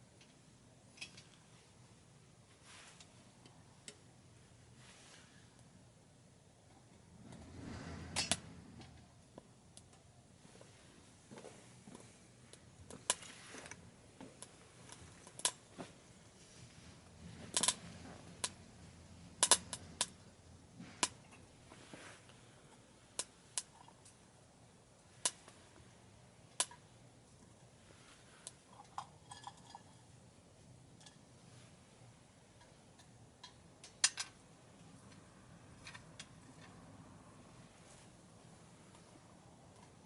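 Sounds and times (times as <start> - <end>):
wood fire crackling: 8.2 - 22.6.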